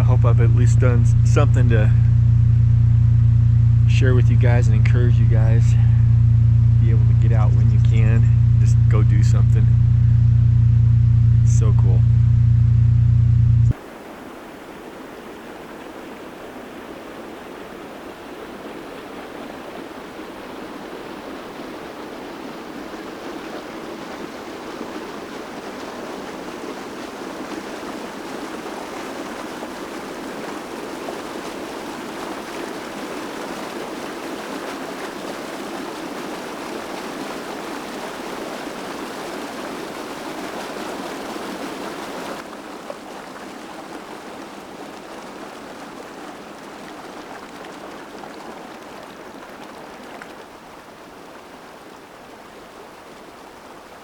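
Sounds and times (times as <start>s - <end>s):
mountain stream rushing: 13.7s - 54.0s.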